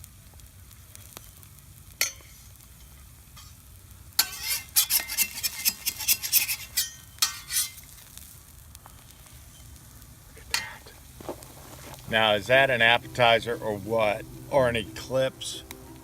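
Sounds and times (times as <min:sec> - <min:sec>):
metal spatula scraping griddle: 0:04.2 - 0:08.0.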